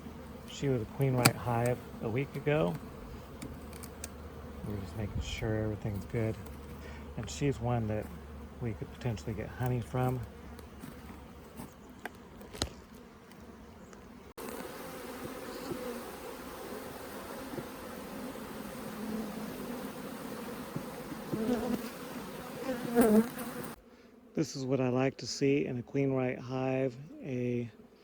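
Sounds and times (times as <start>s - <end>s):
bees buzzing: 0.0s - 25.6s.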